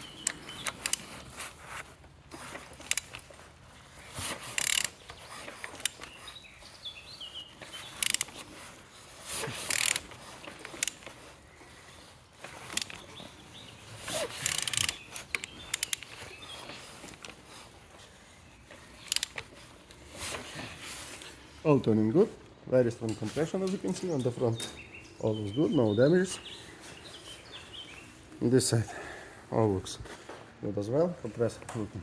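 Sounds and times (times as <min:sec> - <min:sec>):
mechanical clicks and scraping: 0:00.0 - 0:21.4.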